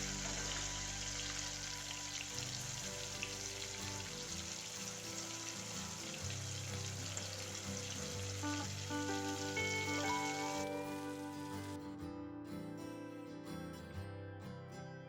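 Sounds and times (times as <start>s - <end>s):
food sizzling in hot oil: 0.0s - 11.8s
soft background music: 0.0s - 15.0s.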